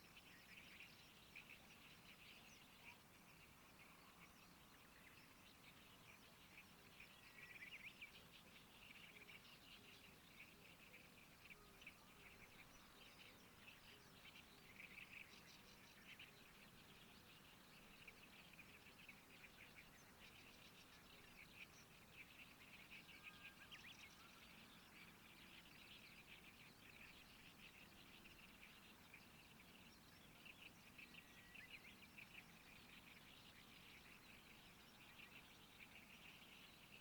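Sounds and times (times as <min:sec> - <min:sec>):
faint birds chirping: 0:00.0 - 0:37.0.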